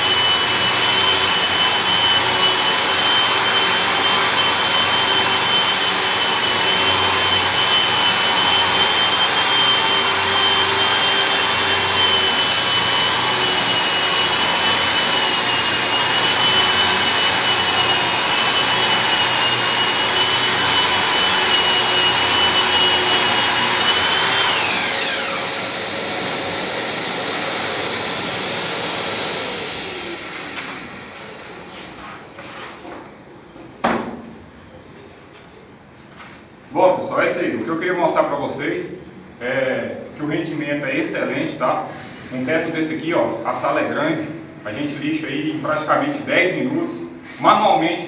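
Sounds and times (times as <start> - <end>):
dust extractor airflow rushing: 0.0 - 32.9
drywall sander whining: 0.0 - 35.6.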